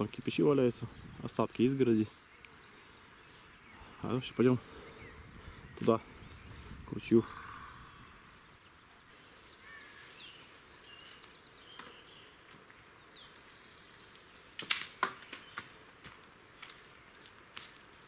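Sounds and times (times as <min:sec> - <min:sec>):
small birds chirping: 0:00.0 - 0:18.0
sharp crackling clicks: 0:14.1 - 0:15.4.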